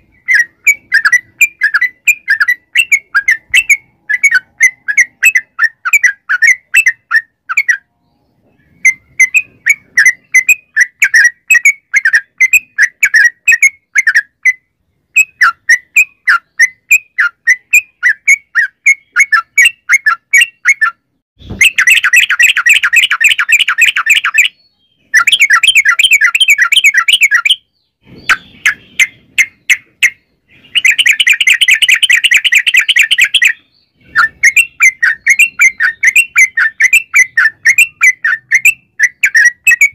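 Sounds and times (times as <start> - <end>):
bird chirping: 0.0 - 39.9
bird rattling trills: 25.2 - 38.2.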